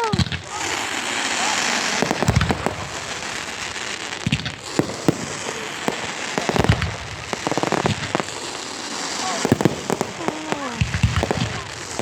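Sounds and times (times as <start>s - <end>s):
crackling firework reports: 0.0s - 12.0s
crackling hiss: 0.0s - 12.0s
firework bangs: 0.0s - 12.0s.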